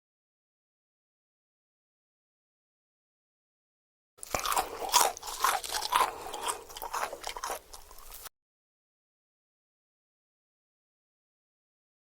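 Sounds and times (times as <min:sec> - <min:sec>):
crunchy food being chewed: 0:04.2 - 0:08.3.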